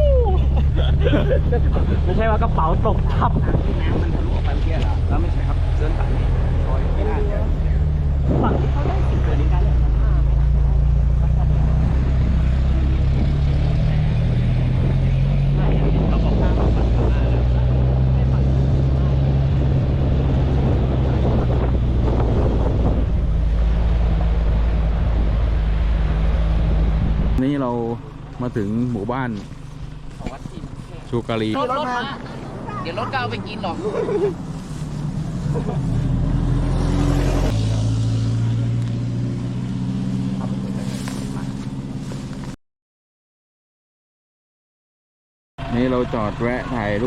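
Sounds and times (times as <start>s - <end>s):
wind buffeting microphone: 0.0s - 5.2s, 7.6s - 9.5s, 14.7s - 27.4s
road rumble: 0.0s - 42.6s, 45.6s - 47.0s
vehicle engine running: 0.0s - 42.6s, 45.6s - 47.0s.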